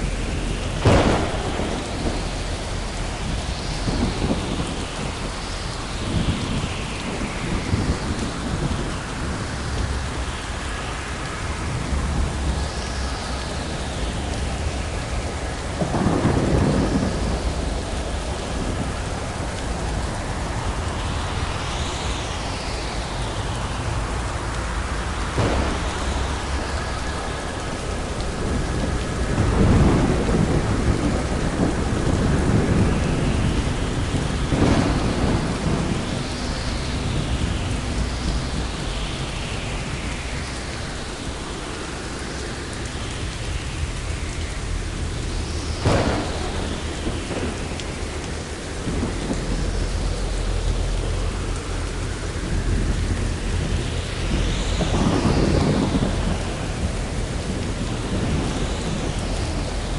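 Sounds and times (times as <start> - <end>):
heavy rain: 0.0 - 59.9
thunder rumbling and cracking: 0.0 - 59.9.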